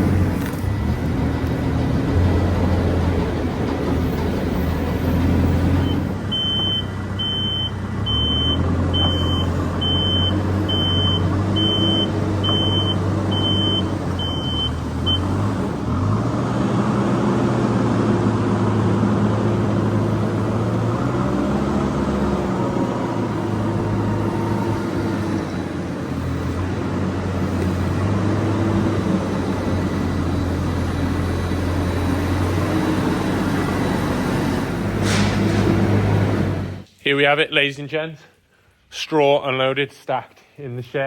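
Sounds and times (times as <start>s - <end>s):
loader engine revving: 0.0s - 36.9s
reversing alarm beeping: 5.7s - 15.4s.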